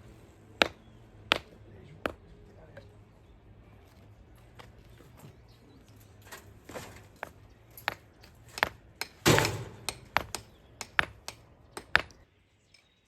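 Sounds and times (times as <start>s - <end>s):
sharp clicks and knocks: 6.3s - 12.2s.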